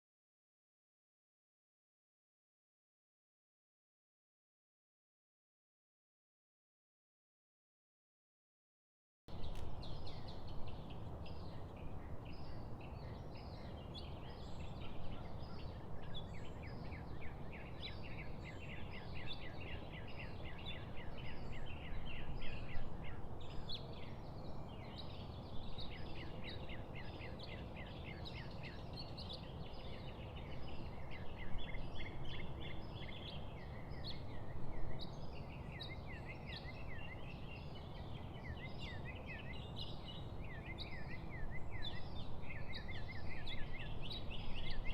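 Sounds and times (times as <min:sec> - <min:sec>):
birds chirping and trilling: 0:09.3 - 0:44.9.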